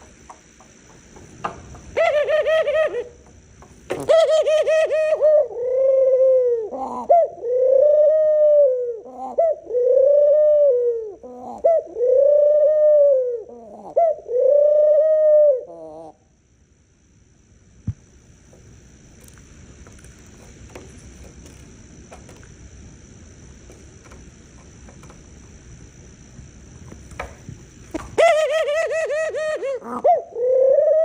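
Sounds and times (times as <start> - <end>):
dove cooing: 1.8 - 3.3, 3.9 - 16.2, 28.0 - 31.0.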